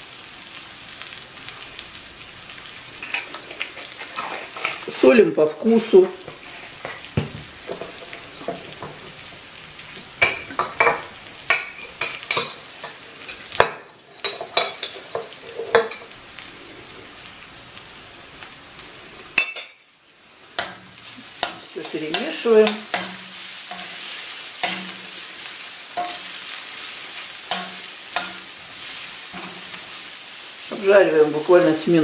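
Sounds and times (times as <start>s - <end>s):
onions sizzling in oil: 0.0s - 32.0s
metal spoon scraping pan: 3.0s - 5.2s, 10.2s - 16.2s, 20.6s - 25.2s, 25.9s - 30.0s.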